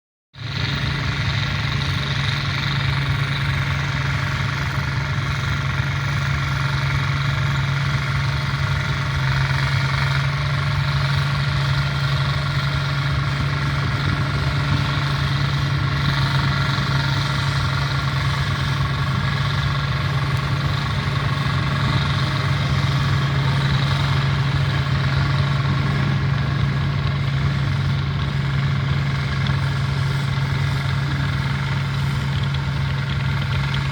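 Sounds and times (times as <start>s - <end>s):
garden tractor diesel engine running: 0.4s - 33.9s.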